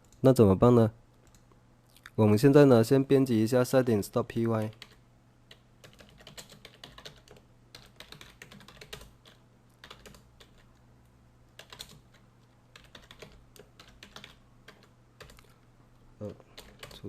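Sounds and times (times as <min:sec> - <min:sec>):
low steady hum: 0:00.0 - 0:17.0
typing on computer keyboard: 0:04.6 - 0:10.7, 0:11.5 - 0:15.6, 0:16.6 - 0:17.0.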